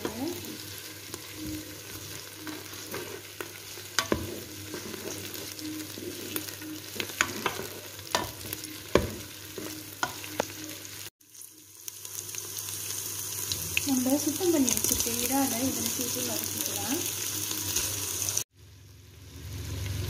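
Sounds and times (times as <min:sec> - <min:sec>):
vegetables sizzling in a pot: 0:00.0 - 0:20.0
utensil clicking and scraping pot: 0:01.1 - 0:08.6.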